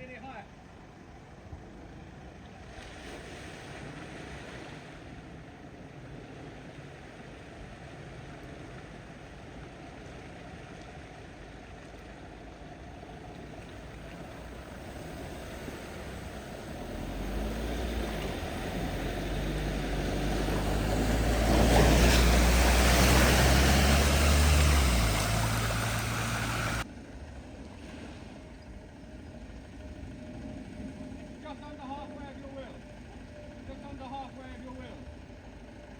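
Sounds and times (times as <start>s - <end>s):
vehicle engine: 12.8s - 35.9s
water surging and splashing: 13.1s - 26.8s.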